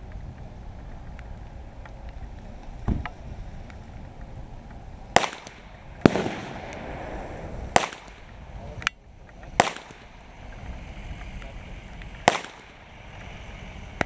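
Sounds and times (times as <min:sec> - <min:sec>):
gunshots with echo: 0:05.2 - 0:08.5, 0:09.6 - 0:10.2, 0:12.2 - 0:12.9.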